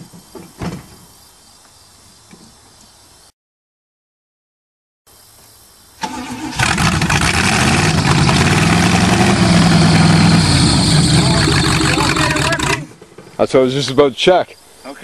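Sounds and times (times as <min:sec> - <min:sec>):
starter motor cranking: 0:06.0 - 0:08.7, 0:11.2 - 0:12.9
car engine running: 0:06.6 - 0:12.9.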